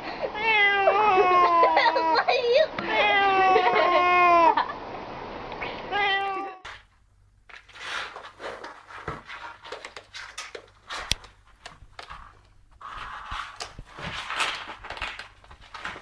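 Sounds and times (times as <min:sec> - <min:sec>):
cat meowing: 0:00.4 - 0:02.2, 0:02.8 - 0:04.6, 0:05.9 - 0:06.7
rustling: 0:06.6 - 0:16.0.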